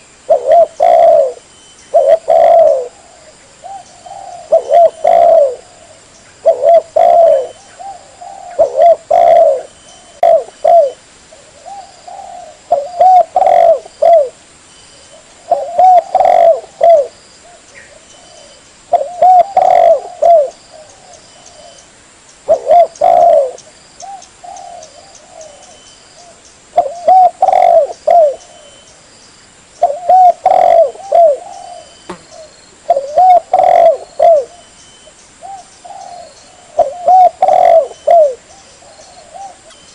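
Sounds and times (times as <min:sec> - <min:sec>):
dove cooing: 0:00.0 - 0:14.4, 0:15.0 - 0:21.8, 0:22.4 - 0:28.8, 0:29.8 - 0:34.8, 0:35.4 - 0:39.9.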